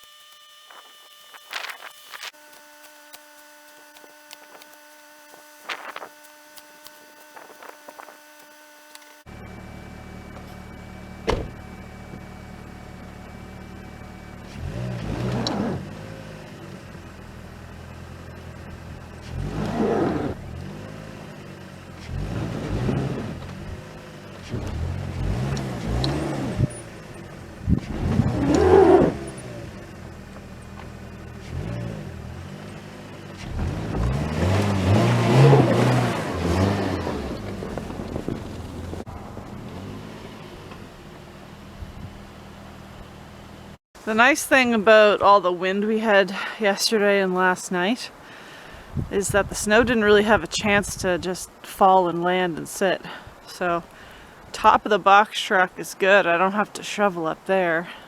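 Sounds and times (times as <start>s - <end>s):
car engine revving: 8.3s - 44.2s.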